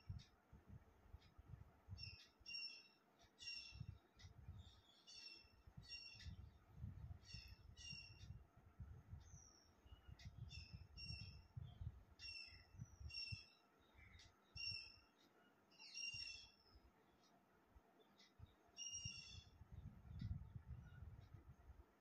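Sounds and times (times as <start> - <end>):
faint low rumble: 3.5 - 15.0, 16.2 - 22.0
bird chirping sharp notes: 15.8 - 16.8.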